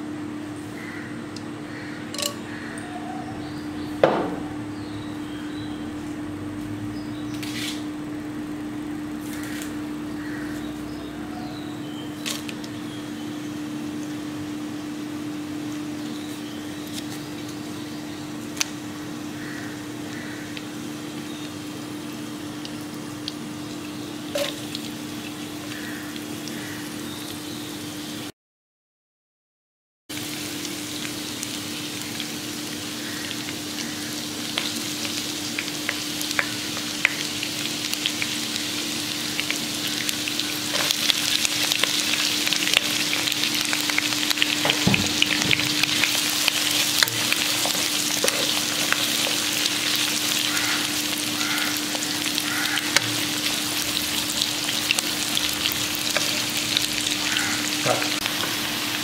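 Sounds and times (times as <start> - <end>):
food frying in hot oil: 3.4 - 28.3, 30.1 - 59.0.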